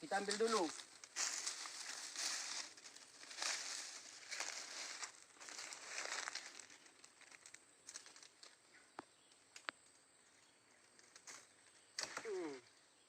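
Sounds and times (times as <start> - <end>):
leafy plants rustling: 0.0 - 9.6.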